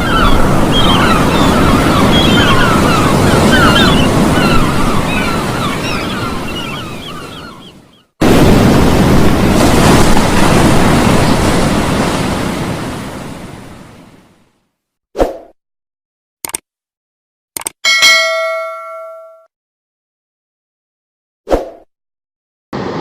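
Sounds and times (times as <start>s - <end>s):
wind: 0.0s - 14.5s, 17.6s - 19.4s, 22.8s - 23.0s
waves: 0.0s - 14.6s, 22.8s - 23.0s.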